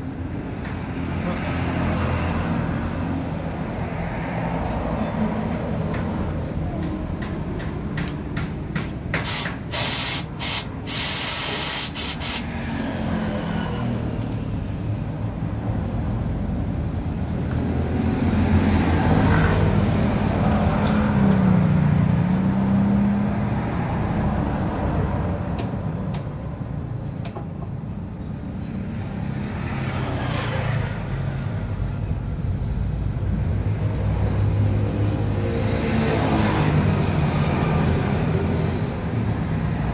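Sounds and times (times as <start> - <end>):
sharp air hiss bursts: 9.1 - 12.5.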